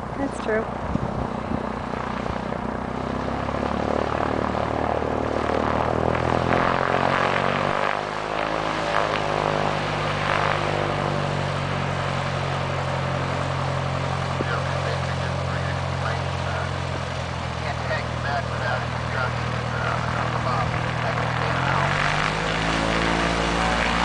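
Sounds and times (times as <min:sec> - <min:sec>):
propeller plane passing: 0:00.0 - 0:24.0.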